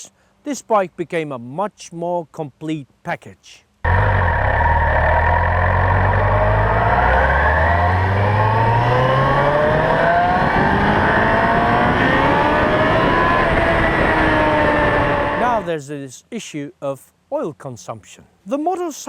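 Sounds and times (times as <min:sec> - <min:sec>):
motorcycle engine accelerating: 0:03.8 - 0:15.7.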